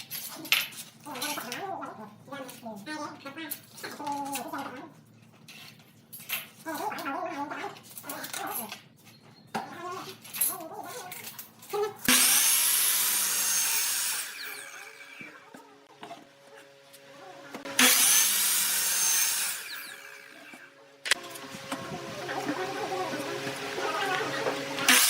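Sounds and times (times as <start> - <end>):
tool scraping wood: 10.9 - 25.0.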